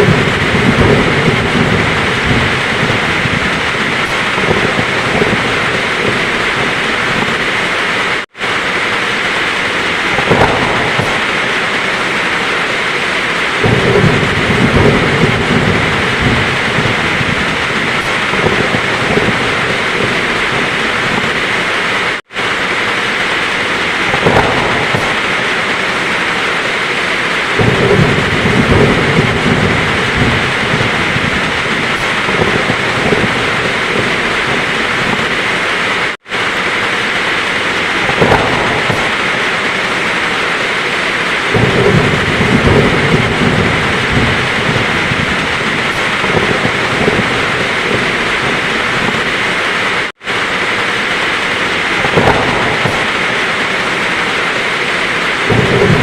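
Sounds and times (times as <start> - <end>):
heavy rain falling: 0.0 - 56.0
thunder rumbling: 0.0 - 56.0.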